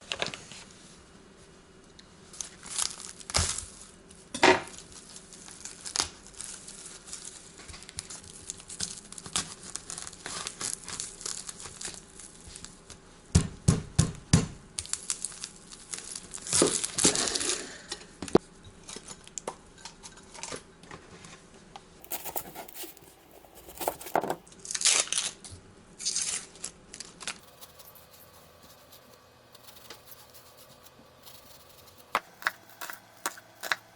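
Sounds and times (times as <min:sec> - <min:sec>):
packaging crinkling and tearing: 0:08.4 - 0:12.4, 0:22.0 - 0:25.4, 0:26.0 - 0:33.9.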